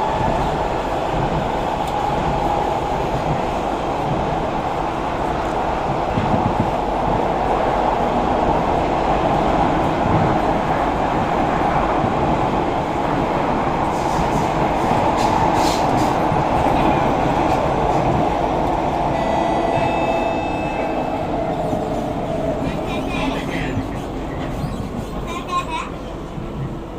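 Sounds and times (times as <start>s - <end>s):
train wheels rumbling: 0.0s - 26.9s
sharp creaks from train bogie: 23.9s - 25.4s.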